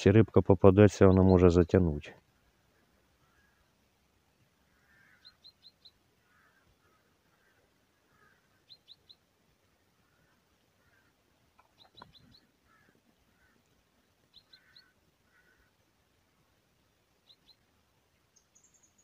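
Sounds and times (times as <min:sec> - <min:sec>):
faint bird chirps: 0:02.3 - 0:03.8, 0:04.6 - 0:15.9, 0:16.9 - 0:19.0
soft low bird calls: 0:02.4 - 0:03.8, 0:04.6 - 0:19.0.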